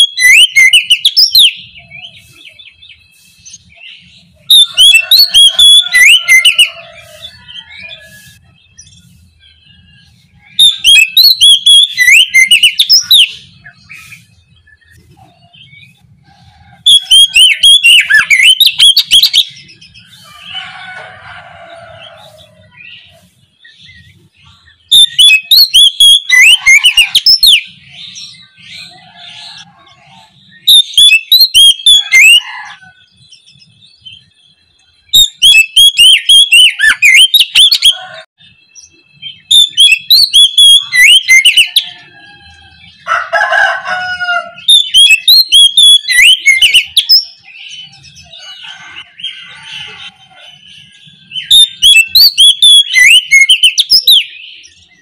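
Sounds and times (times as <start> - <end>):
bird singing whistles and trills: 0.0 - 16.0, 16.8 - 20.5, 22.0 - 32.4, 33.1 - 43.1, 44.6 - 55.0
quiet bird chirps: 12.6 - 16.8.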